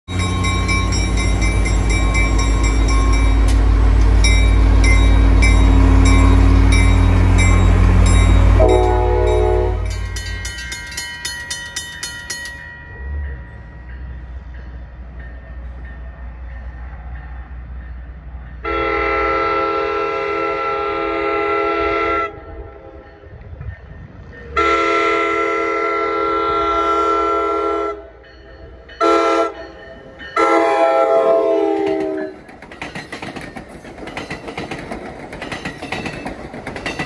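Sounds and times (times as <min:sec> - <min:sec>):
crossing bell dinging: 0:00.1 - 0:19.7, 0:22.2 - 0:34.8
diesel locomotive engine passing: 0:00.1 - 0:37.0
train horn: 0:08.4 - 0:10.0, 0:18.6 - 0:23.0, 0:24.5 - 0:28.2, 0:29.0 - 0:29.6, 0:30.4 - 0:32.4.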